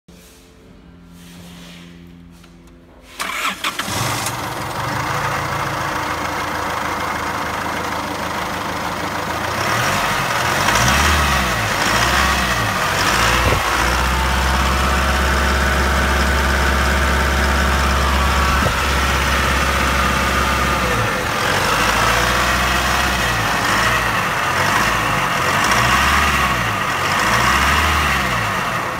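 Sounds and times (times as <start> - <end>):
engine idling: 2.0 - 28.9
engine revving: 3.1 - 28.9
engine cranking: 3.2 - 6.3.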